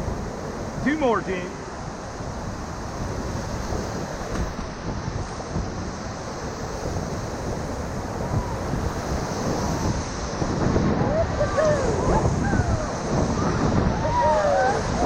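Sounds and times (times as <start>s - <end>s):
whitewater river rushing: 0.0s - 15.0s
wind buffeting microphone: 0.0s - 15.0s.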